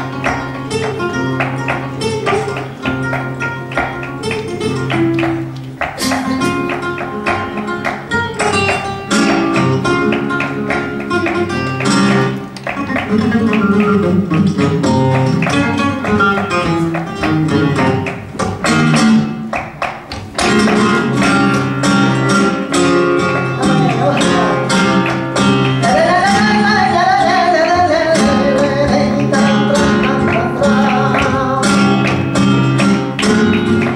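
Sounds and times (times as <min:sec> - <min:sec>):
sharp percussive strikes: 0:00.0 - 0:26.5
flamenco acoustic guitar: 0:00.0 - 0:33.9.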